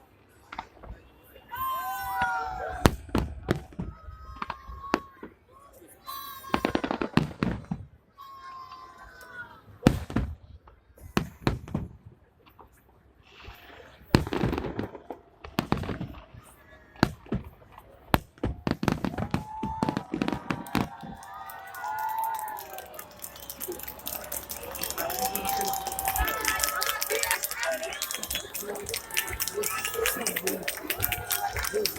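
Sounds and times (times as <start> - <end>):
fireworks bangs: 14.2 - 16.2, 18.2 - 31.9
onlookers' voices: 19.4 - 31.9.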